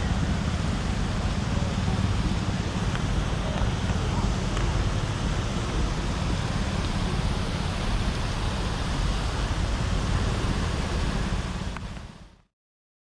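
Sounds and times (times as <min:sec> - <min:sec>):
passing traffic: 0:00.0 - 0:12.4
wind buffeting microphone: 0:00.0 - 0:12.4.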